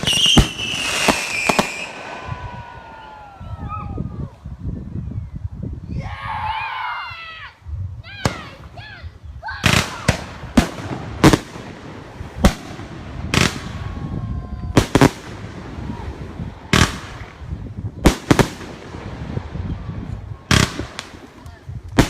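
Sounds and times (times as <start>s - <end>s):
fireworks banging: 0.0s - 2.4s, 9.6s - 22.0s.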